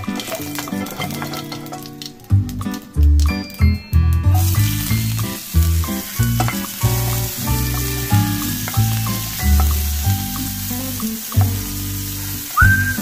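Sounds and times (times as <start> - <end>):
onions sizzling in hot oil: 0.0 - 2.7, 4.1 - 13.0
background music with bass line: 2.3 - 13.0
spatula stirring in a pan: 4.9 - 12.6.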